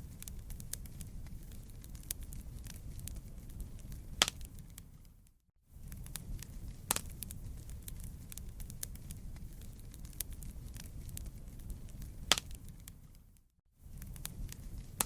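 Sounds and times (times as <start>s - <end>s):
sharp fire pops: 0.0s - 5.2s, 5.8s - 13.3s, 13.9s - 15.0s
campfire crackling: 0.0s - 15.0s.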